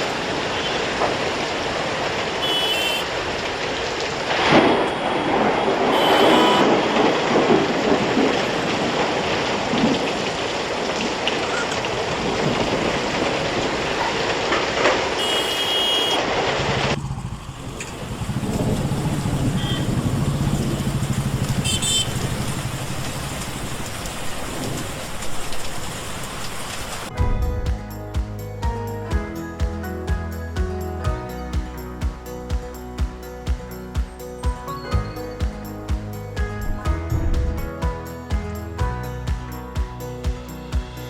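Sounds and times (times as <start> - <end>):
passing traffic: 0.0 - 29.2, 32.2 - 41.0
heavy rain on a road: 0.0 - 41.0
vehicle engine hum: 15.1 - 27.8.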